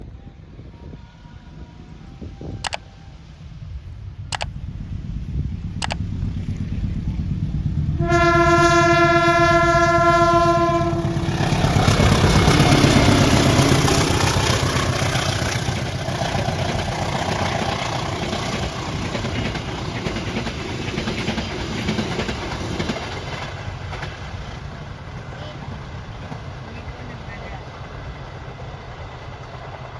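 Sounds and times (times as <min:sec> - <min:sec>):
locomotive rumble: 0:01.4 - 0:29.9
train horn blast: 0:07.9 - 0:13.6
train wheels rattling on rails: 0:08.8 - 0:29.9.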